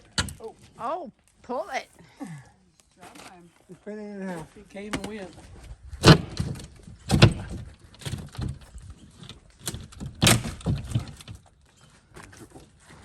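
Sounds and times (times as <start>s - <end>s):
wooden boards knocking and cracking: 0.0s - 0.4s, 6.0s - 12.8s
wood clatter: 4.9s - 13.0s.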